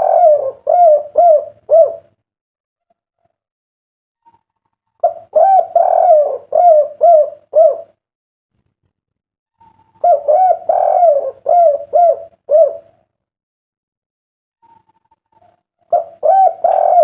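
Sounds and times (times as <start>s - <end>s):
dove cooing: 0.0s - 2.2s, 5.0s - 8.0s, 9.6s - 13.1s, 14.6s - 17.0s.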